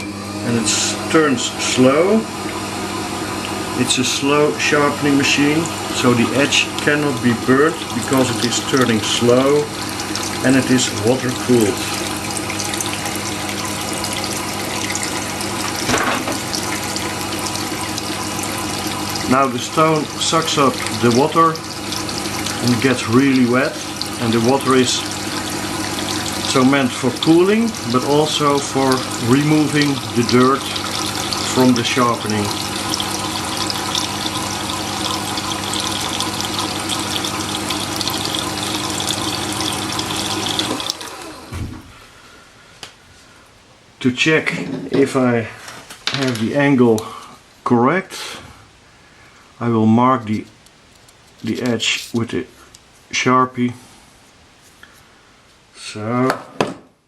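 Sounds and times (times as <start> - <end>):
low motor hum: 0.0 - 41.9
water washing: 0.4 - 41.9.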